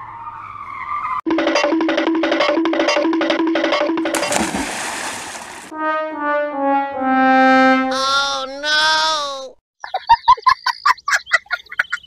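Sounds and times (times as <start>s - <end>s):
brass background music: 5.7s - 8.2s
horn-like melody: 5.7s - 8.3s.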